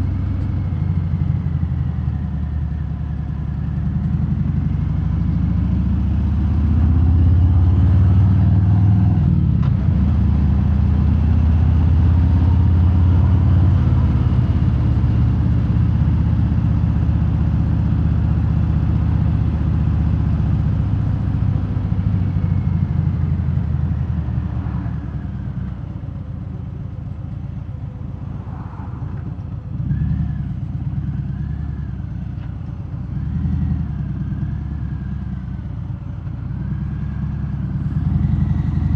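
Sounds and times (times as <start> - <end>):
motorcycle engine under throttle: 33.0 - 38.9.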